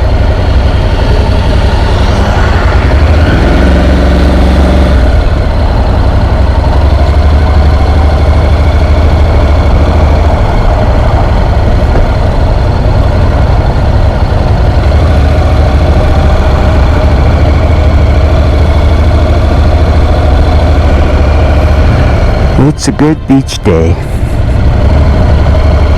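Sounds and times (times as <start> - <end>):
motorcycle engine deep rumble: 0.0 - 23.3, 24.0 - 25.9.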